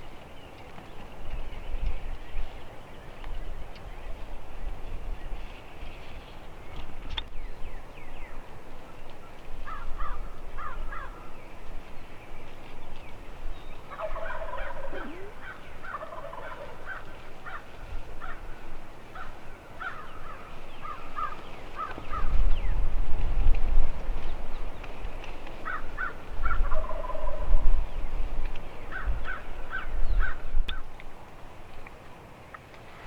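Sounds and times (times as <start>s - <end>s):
birds calling: 13.0s - 18.4s, 19.2s - 22.8s, 24.5s - 31.1s
turkeys gobbling: 13.9s - 17.0s, 26.7s - 27.5s.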